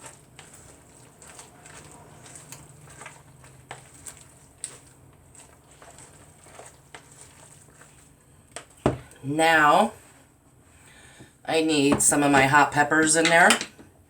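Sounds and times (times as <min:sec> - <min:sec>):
utensil stirring wet food: 0:00.0 - 0:10.2.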